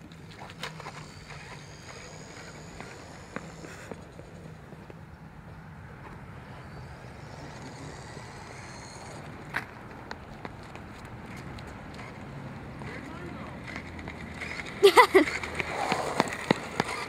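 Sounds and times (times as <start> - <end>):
steady low hum: 0.0 - 16.8
rc car motors whining: 0.6 - 4.5, 6.4 - 9.6, 13.7 - 17.0.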